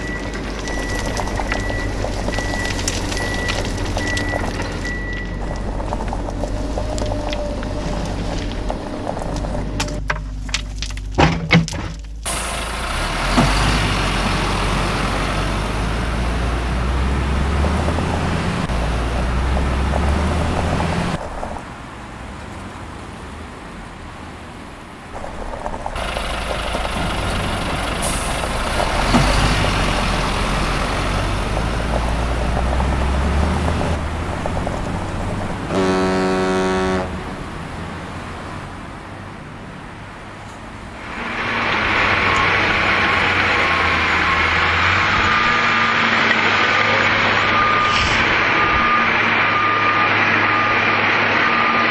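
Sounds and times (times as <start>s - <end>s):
truck engine rumbling: 0.0s - 51.9s
truck horn toot: 35.6s - 37.7s.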